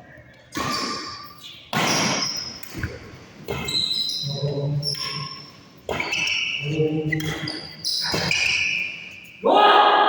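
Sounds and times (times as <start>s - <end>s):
racket hitting shuttlecock: 0.5s - 3.8s.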